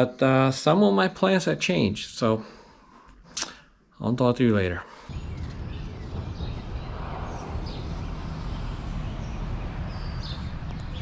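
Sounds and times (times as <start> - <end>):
bird chirps: 5.1 - 11.0
steady low rumble: 5.1 - 11.0.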